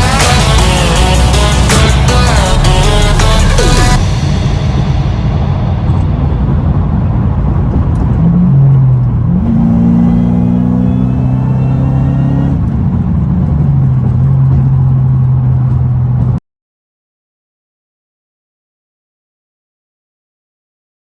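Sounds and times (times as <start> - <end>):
car engine revving and idling: 0.0 - 16.4.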